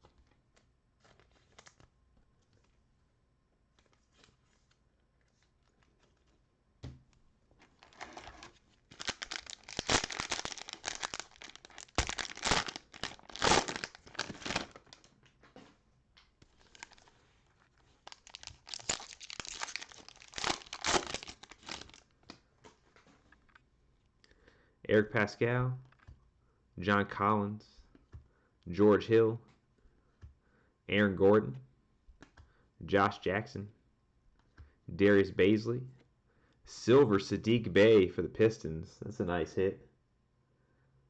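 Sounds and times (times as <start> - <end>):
cellophane wrapper crinkling: 1.0 - 1.9, 7.6 - 15.4, 16.4 - 23.6.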